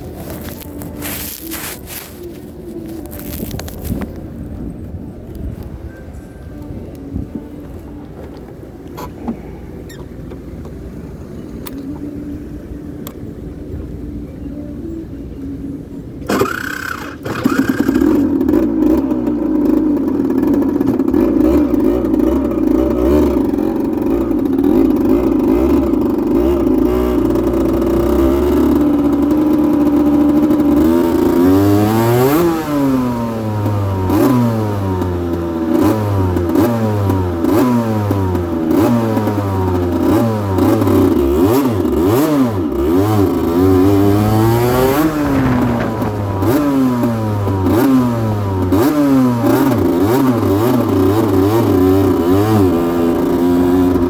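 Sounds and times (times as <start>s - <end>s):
two-stroke motorcycle engine revving: 16.2s - 54.0s.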